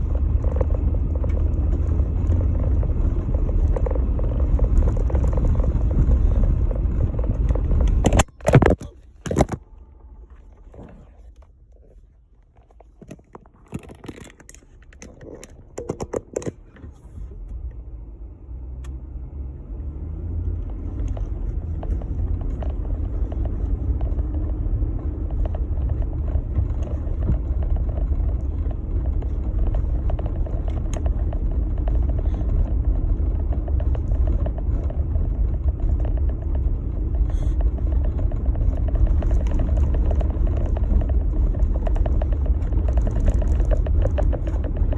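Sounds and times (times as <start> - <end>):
engine and tyre rumble: 0.0 - 44.9.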